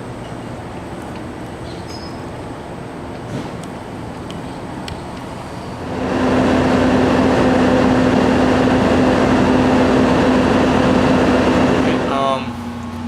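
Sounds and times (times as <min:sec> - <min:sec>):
machine humming and rushing: 0:05.8 - 0:12.4.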